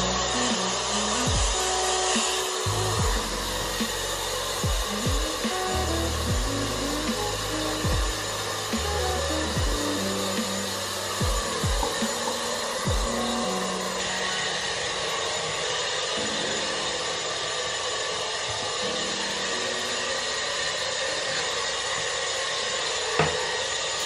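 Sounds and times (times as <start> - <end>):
music with sliding bass: 0.0 - 1.8, 2.7 - 13.9
blow dryer airflow: 0.0 - 24.0.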